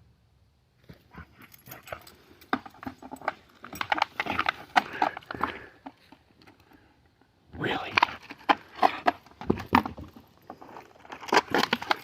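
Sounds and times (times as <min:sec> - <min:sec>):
jangling clicks: 0:01.3 - 0:05.5.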